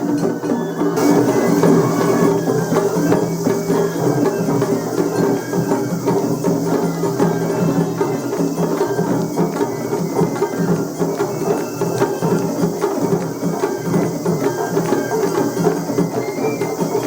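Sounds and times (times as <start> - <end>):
drums: 0.0 - 17.0.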